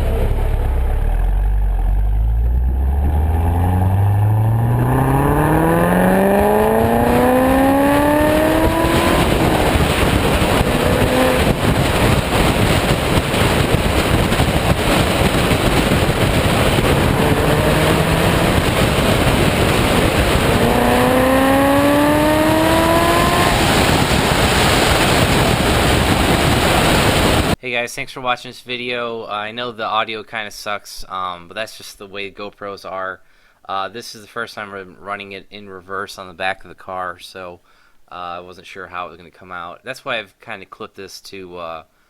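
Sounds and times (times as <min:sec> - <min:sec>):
car engine accelerating: 0:00.0 - 0:27.6
loud rushing noise: 0:00.0 - 0:27.6.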